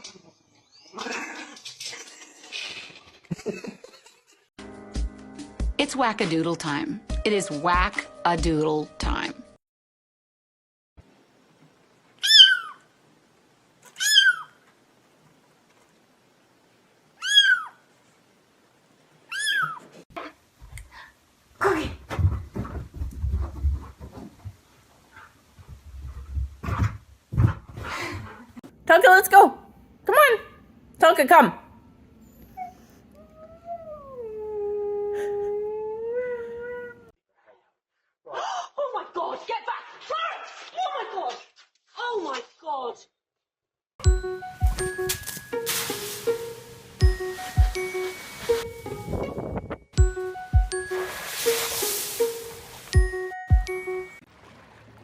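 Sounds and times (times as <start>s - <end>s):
cat meowing: 12.2s - 12.8s, 13.9s - 14.6s, 17.2s - 17.8s, 19.3s - 19.8s
dog howling: 32.4s - 37.2s.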